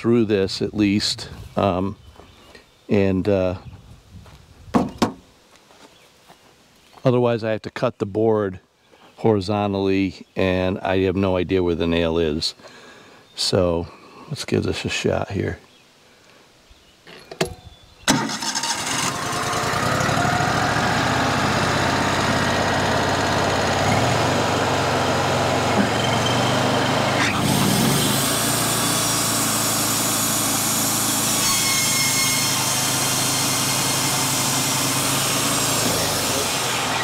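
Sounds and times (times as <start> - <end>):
bandsaw mill running under load: 18.7 - 37.0.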